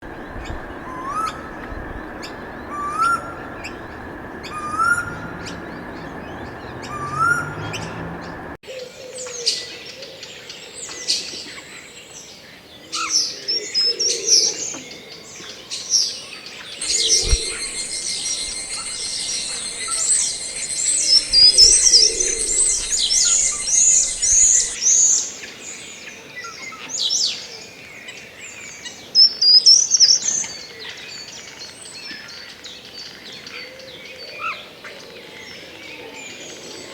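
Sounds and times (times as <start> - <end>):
bird repeating rising call: 0.0 - 8.6, 16.8 - 24.8
birds chirping together: 0.0 - 8.6, 16.8 - 24.8
faint steady tone: 0.0 - 8.6, 16.8 - 24.8
steady high buzz: 16.8 - 24.8.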